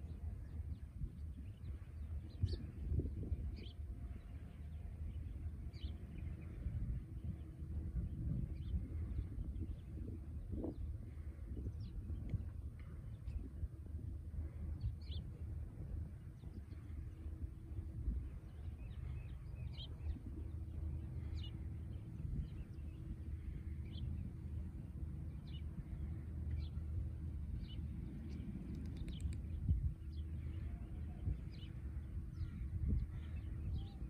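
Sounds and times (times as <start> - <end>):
faint hum: 0.0 - 34.0
small birds chirping: 16.0 - 34.0.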